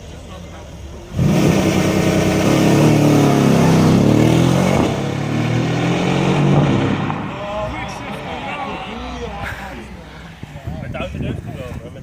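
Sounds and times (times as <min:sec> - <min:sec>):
car engine accelerating hard: 0:01.1 - 0:09.9.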